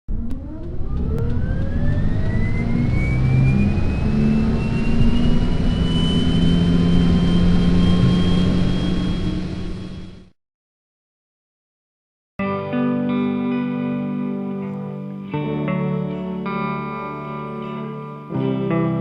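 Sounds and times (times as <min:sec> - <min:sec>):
jet engine whine rising: 0:00.1 - 0:10.3
loud steady rumble: 0:00.1 - 0:10.3.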